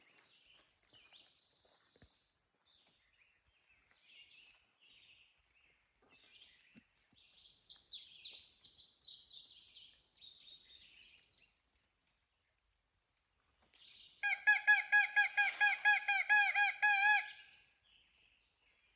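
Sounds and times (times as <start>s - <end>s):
songbirds chirping: 0.0s - 12.9s.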